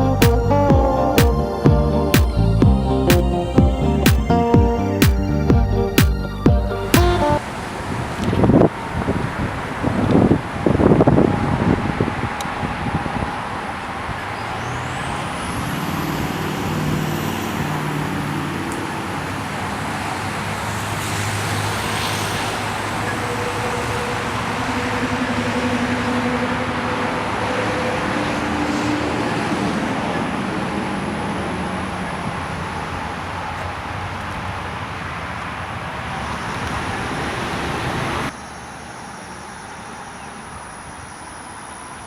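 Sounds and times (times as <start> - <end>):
vehicle road noise: 0.0 - 42.0.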